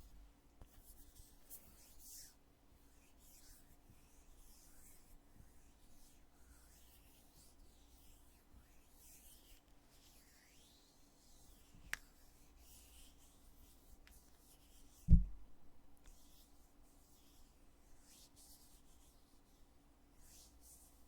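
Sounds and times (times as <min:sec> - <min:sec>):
dull low thump of lid: 0:15.1 - 0:15.6.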